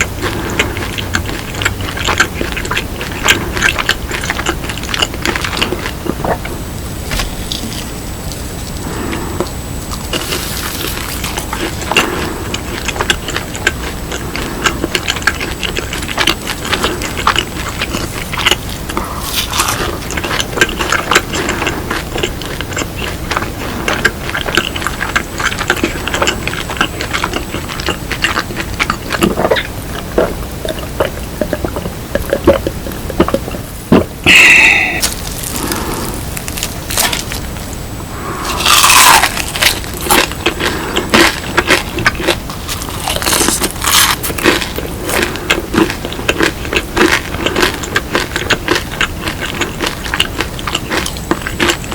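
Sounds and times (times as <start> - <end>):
chewing crisp food: 0.0 - 51.9
mouth clicks: 8.8 - 42.4.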